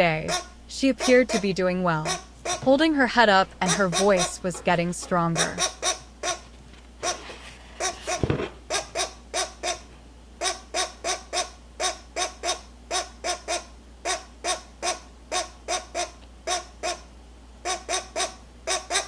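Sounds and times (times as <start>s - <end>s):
woodpecker nestling calling: 0.2s - 6.4s, 10.4s - 17.0s.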